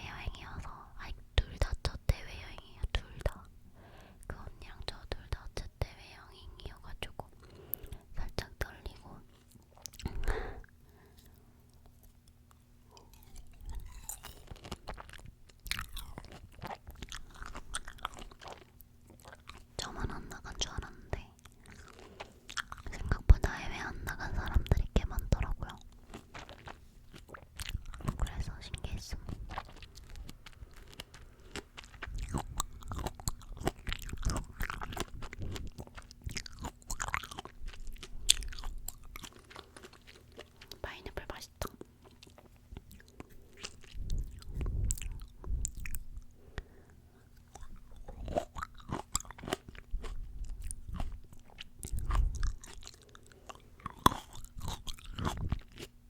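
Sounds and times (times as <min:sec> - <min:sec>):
crunchy fruit chewing: 0:08.9 - 0:23.4, 0:24.0 - 0:56.0.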